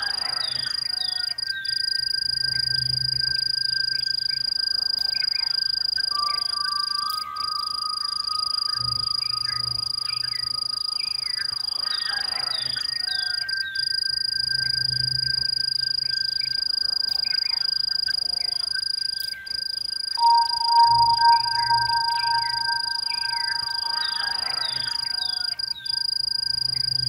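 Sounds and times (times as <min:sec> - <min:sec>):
bird chirps: 0:00.0 - 0:27.0
high-pitched insect drone: 0:00.0 - 0:27.0
long whistled notes: 0:00.0 - 0:27.0
loud steady note: 0:20.2 - 0:25.6.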